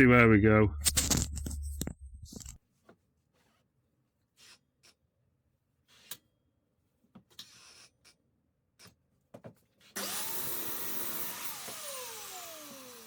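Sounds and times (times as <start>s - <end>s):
power saw motor whining: 10.0s - 13.0s.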